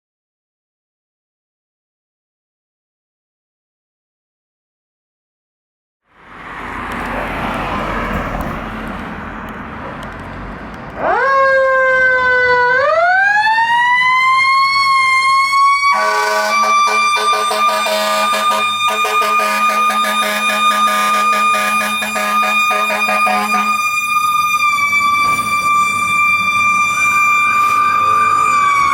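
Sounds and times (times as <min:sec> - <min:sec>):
fire engine siren wailing: 0:11.0 - 0:28.9.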